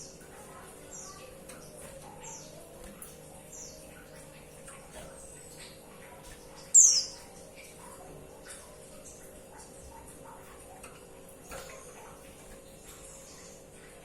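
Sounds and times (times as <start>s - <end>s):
bird chirping: 6.7s - 7.2s.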